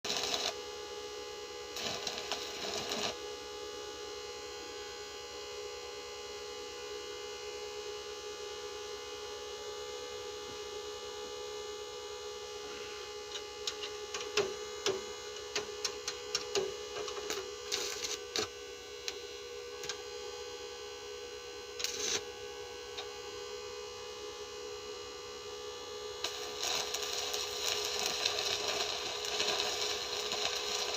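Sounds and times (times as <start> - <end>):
electrical hum: 0.1 - 4.6, 11.7 - 30.9.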